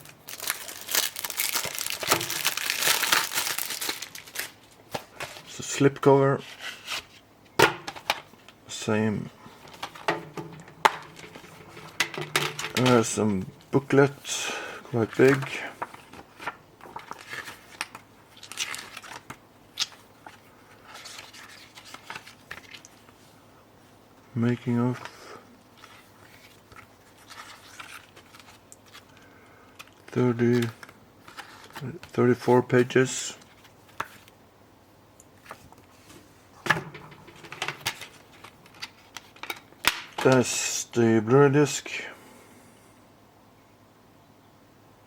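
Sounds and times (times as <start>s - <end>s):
paper rustling: 0.0s - 5.5s, 15.0s - 23.2s, 25.8s - 29.2s.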